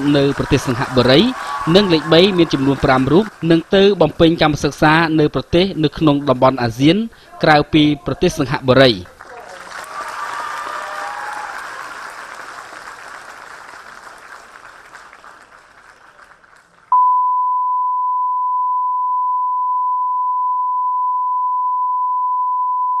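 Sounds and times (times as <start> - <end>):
audience applause: 0.0 - 6.8, 9.1 - 16.9.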